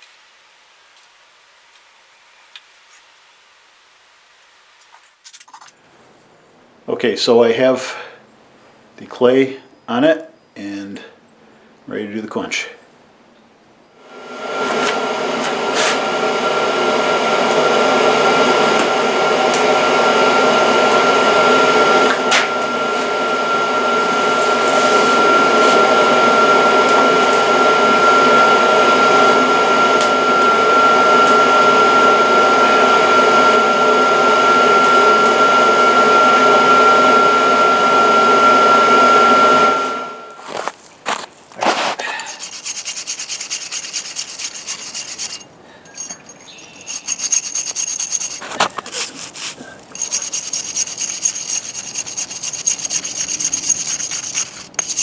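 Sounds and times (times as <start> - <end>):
forge air blower whining: 14.2 - 40.4, 42.3 - 55.0
scraping: 41.6 - 55.0.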